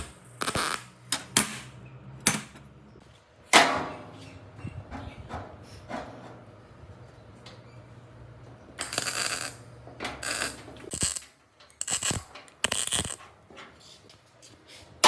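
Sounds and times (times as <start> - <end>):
metal clattering and scraping: 3.5 - 15.0.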